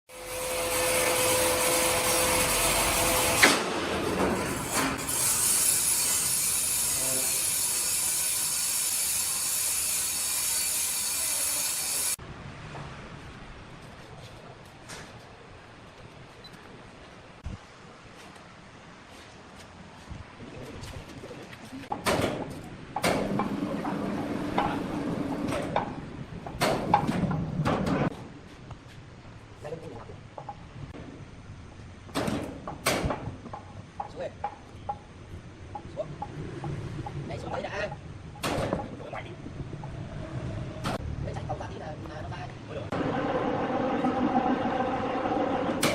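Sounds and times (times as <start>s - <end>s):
saw cutting wood: 0.1s - 12.2s
machine whine: 42.9s - 45.9s.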